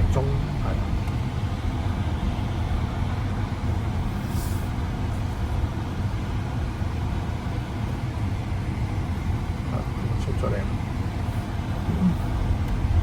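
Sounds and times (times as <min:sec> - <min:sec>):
car engine rumble: 0:00.0 - 0:13.0
road noise: 0:00.0 - 0:13.0
brief hiss: 0:04.2 - 0:04.7.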